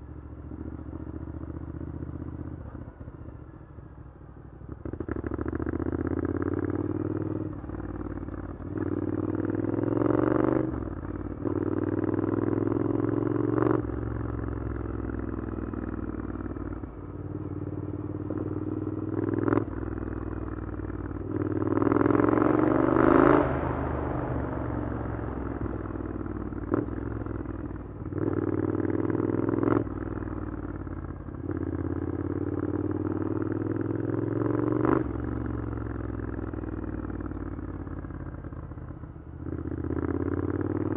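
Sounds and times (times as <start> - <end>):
motorcycle accelerating: 4.6 - 40.9
exhaust cracks: 21.1 - 28.2.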